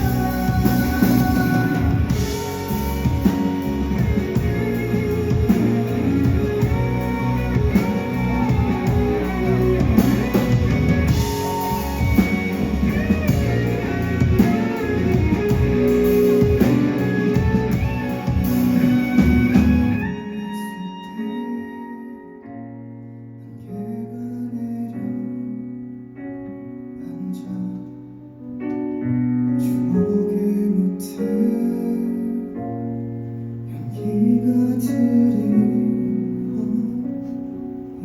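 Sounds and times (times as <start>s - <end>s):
electric guitar: 0.0s - 23.0s
live band playing ballad: 0.0s - 38.0s.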